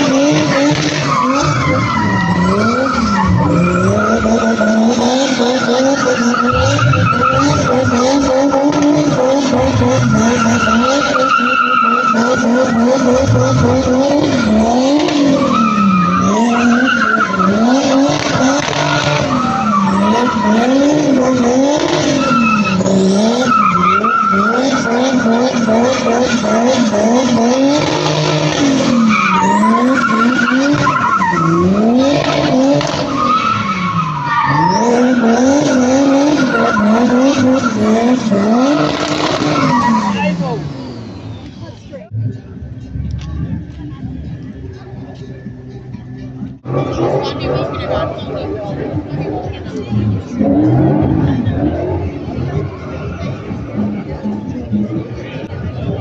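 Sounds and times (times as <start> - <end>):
car engine revving: 0.0 - 56.0
tyre squeal: 0.7 - 8.8, 27.8 - 41.6.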